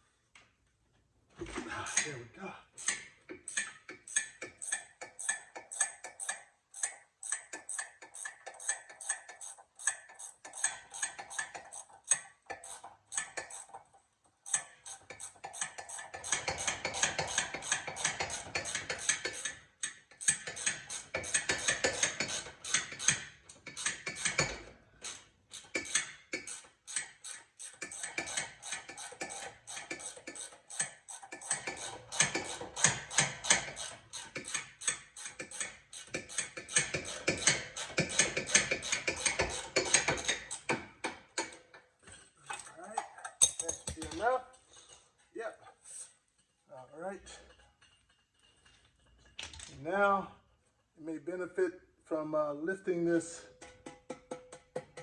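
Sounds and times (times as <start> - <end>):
ratchet wrench clicking: 2.8 - 13.7, 14.5 - 40.8.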